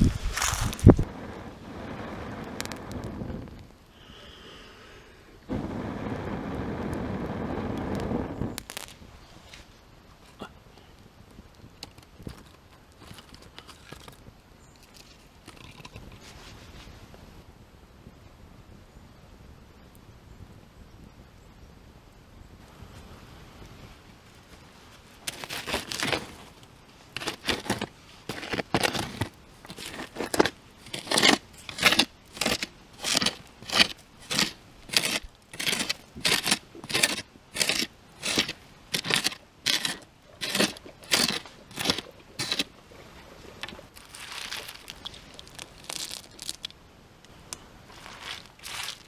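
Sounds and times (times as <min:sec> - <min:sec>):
footsteps crunching through dry leaves: 0:00.0 - 0:01.1, 0:43.9 - 0:46.6, 0:47.8 - 0:49.0
soft leaf rustle: 0:00.0 - 0:01.1, 0:16.1 - 0:17.4, 0:22.6 - 0:49.0.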